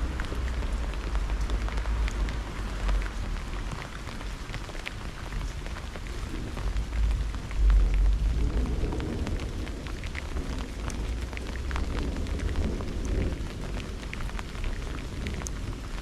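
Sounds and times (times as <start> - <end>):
rain drops ticking: 0.0 - 16.0
low thunder rumble: 6.1 - 15.9.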